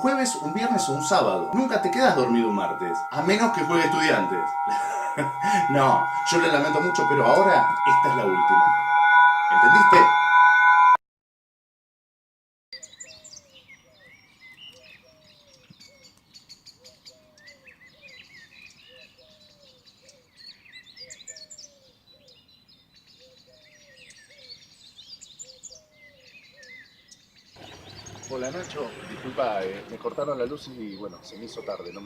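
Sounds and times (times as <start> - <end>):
birds chirping and twittering: 0.0 - 10.4, 12.8 - 32.0
low repeated bird call: 0.0 - 10.8, 27.6 - 32.0.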